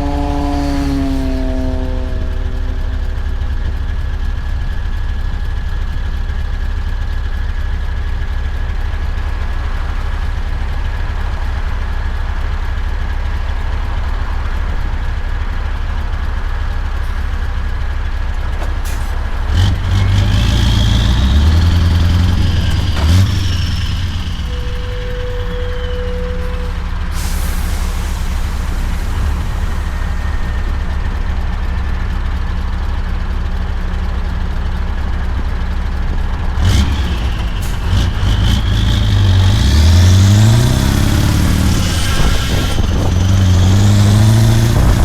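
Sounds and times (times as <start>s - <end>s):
truck engine droning: 0.0s - 45.0s
high whistle: 22.2s - 31.9s.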